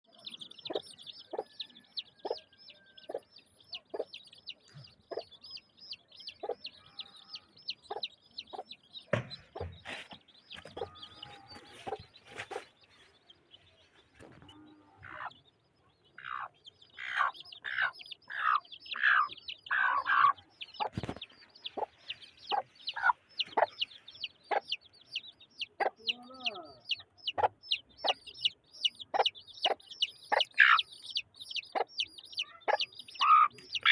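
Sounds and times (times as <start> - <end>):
chicks peeping: 0.0 - 33.9
chicken clucking: 0.1 - 33.9
knocks: 9.1 - 10.0.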